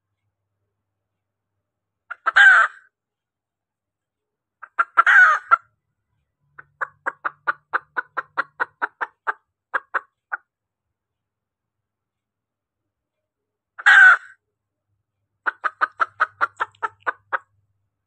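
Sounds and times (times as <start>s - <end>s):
hen clucking: 2.1s - 2.8s, 4.6s - 5.7s, 6.6s - 10.5s, 13.8s - 14.3s, 15.4s - 17.6s
junglefowl hen calling: 2.1s - 2.9s, 4.6s - 5.7s, 6.6s - 10.5s, 13.8s - 14.4s, 15.4s - 17.6s.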